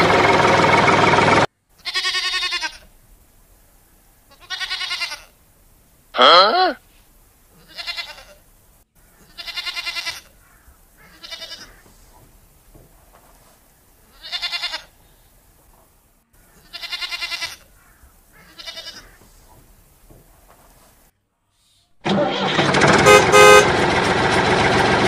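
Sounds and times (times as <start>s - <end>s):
livestock bleating: 1.8s - 2.9s, 4.3s - 5.4s, 6.2s - 6.8s, 7.5s - 8.4s, 9.2s - 11.9s, 14.0s - 15.0s, 16.5s - 19.3s.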